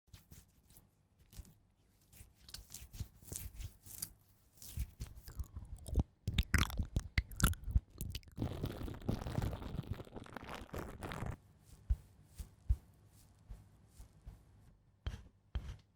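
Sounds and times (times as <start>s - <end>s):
close crackling and scratching clicks: 5.3s - 11.4s.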